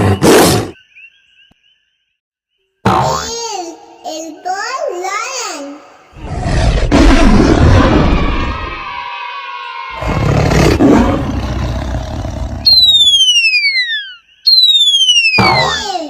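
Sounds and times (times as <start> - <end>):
cartoon animal roar: 6.2 - 9.0, 9.9 - 12.7
descending cartoon whistles: 12.5 - 16.0.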